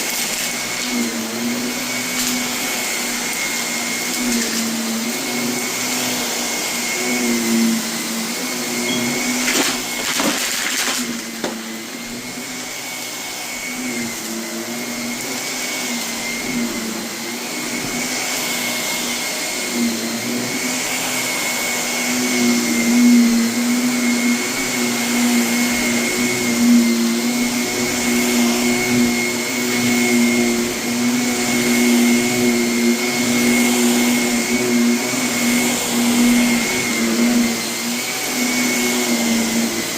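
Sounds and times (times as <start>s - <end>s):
vacuum cleaner motor humming: 0.0s - 39.9s.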